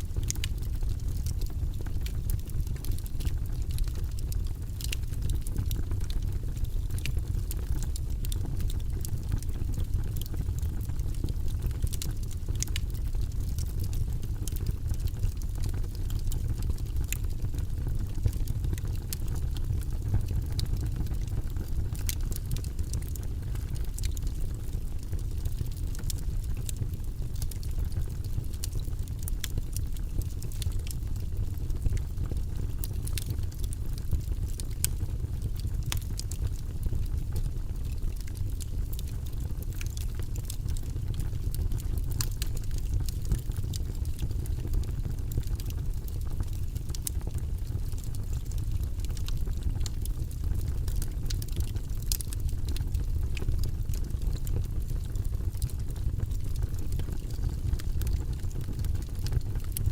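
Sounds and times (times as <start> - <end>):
fire rumbling: 0.0 - 59.9
logs crackling and popping: 0.0 - 59.9.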